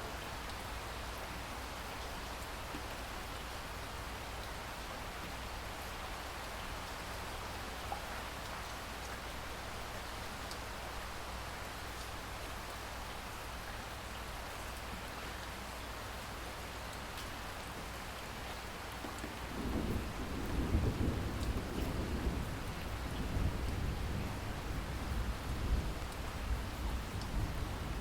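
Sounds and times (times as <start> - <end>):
rain hiss: 0.0 - 28.0
low thunder rumble: 19.4 - 28.0.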